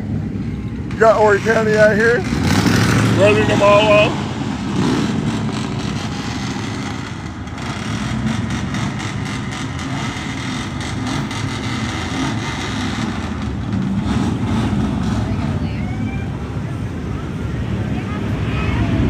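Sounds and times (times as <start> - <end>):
car and truck engines droning: 0.0 - 19.0.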